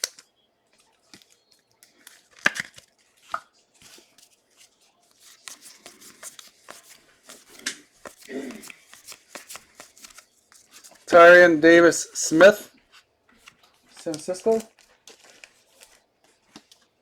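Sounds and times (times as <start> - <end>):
trading cards flicking and rustling: 0.0 - 17.0
card snaps: 1.9 - 3.5.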